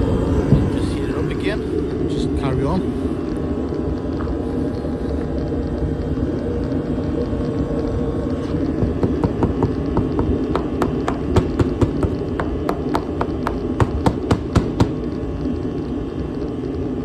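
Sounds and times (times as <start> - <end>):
heat source rushing: 0.0 - 17.0
sharp irregular taps: 8.8 - 15.0.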